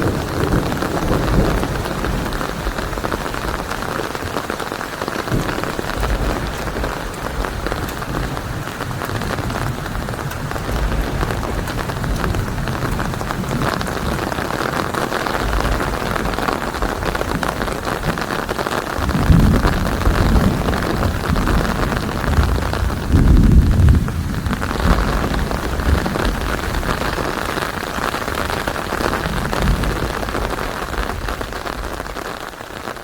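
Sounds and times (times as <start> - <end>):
rolling thunder: 0.0 - 32.4
heavy rain hissing: 0.0 - 33.0.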